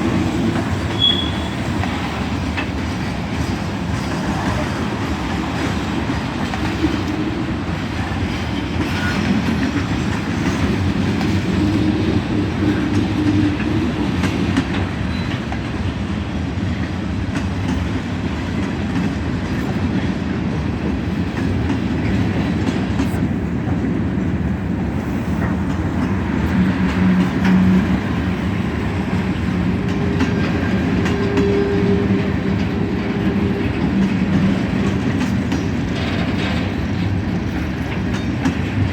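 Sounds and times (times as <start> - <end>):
clickety-clack of rails: 0.0 - 38.9
freight train wheels rumbling: 0.0 - 38.9
faint ringing tone from wheels: 0.9 - 1.6.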